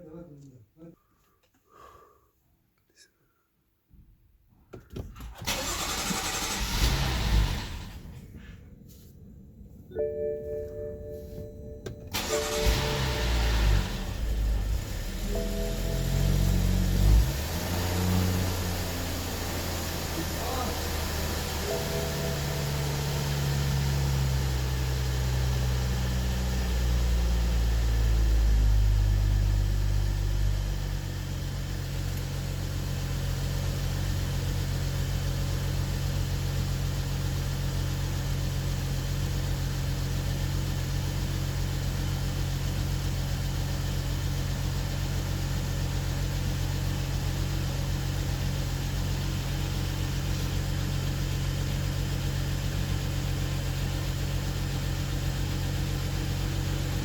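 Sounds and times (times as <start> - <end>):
car engine idling: 5.0 - 57.0.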